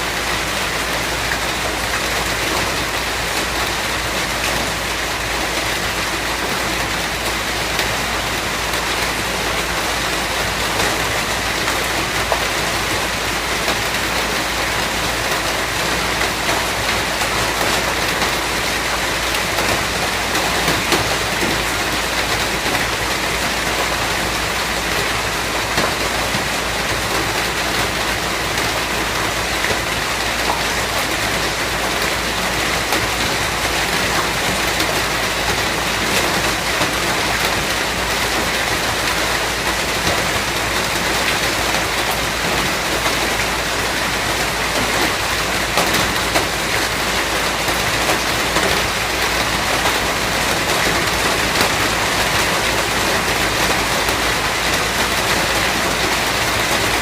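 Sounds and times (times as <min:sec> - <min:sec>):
heavy rain on a surface: 0:00.0 - 0:57.0.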